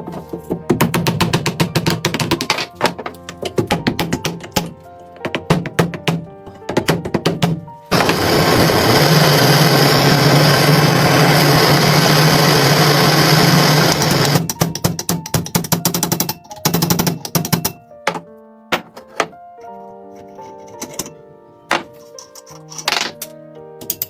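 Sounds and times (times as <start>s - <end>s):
motor-driven tool running: 7.9s - 14.4s.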